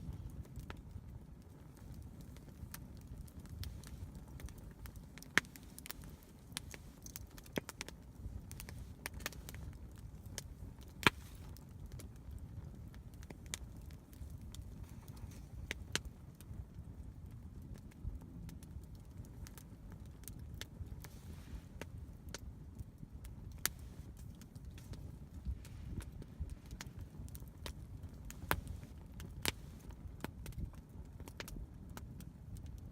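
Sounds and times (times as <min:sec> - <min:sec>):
sharp fire pops: 0:00.0 - 0:16.8, 0:23.2 - 0:32.7
campfire crackling: 0:00.0 - 0:32.9
low steady rumble: 0:00.0 - 0:32.9.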